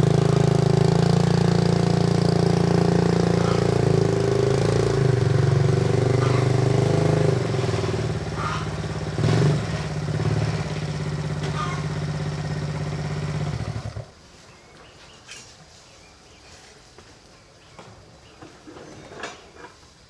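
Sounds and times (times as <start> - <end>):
small engine running: 0.0 - 14.1.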